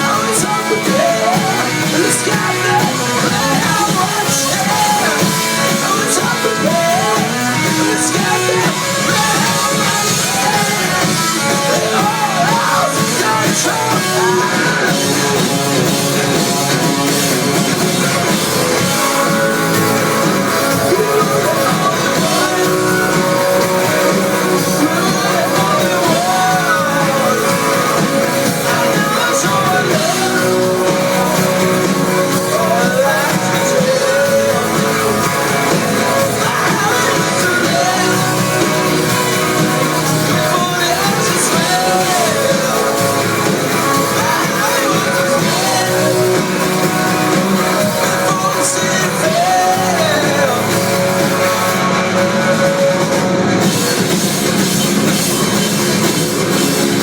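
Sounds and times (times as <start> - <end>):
person singing: 0.0 - 57.0
rock band playing live: 0.0 - 57.0.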